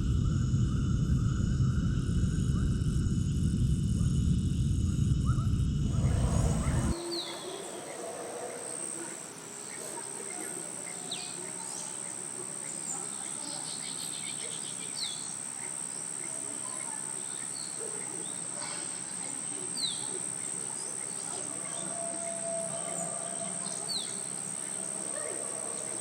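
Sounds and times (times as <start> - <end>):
high insect drone: 0.0 - 26.0
short falling bird calls: 5.9 - 12.1.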